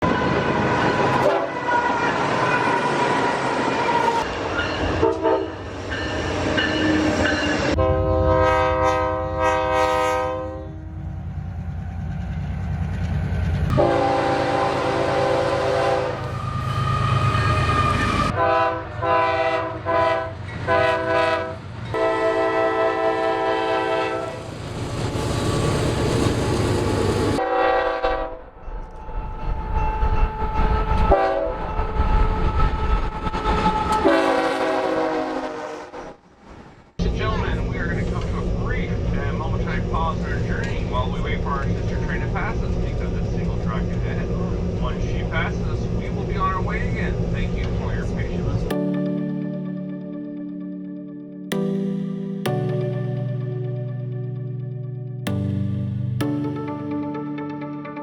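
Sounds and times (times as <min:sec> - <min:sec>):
train horn blasts: 0:00.0 - 0:04.3, 0:05.0 - 0:05.7, 0:07.7 - 0:11.2, 0:13.7 - 0:24.5, 0:27.4 - 0:28.6, 0:30.4 - 0:36.2
train rumble and clatter: 0:00.0 - 0:22.4, 0:23.7 - 0:27.5, 0:28.4 - 0:34.6, 0:37.0 - 0:48.7.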